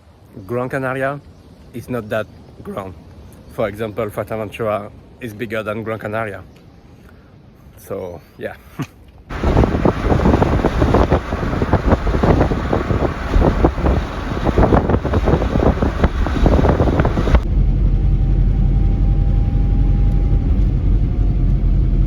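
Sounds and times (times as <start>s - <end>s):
car engine and road rumble: 9.3s - 22.0s
wind buffeting microphone: 9.3s - 22.0s.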